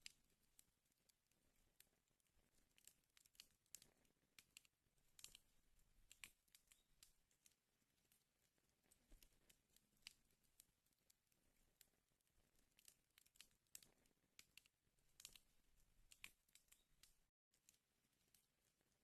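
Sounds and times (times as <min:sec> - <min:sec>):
fire crackling faintly: 0:00.0 - 0:19.0.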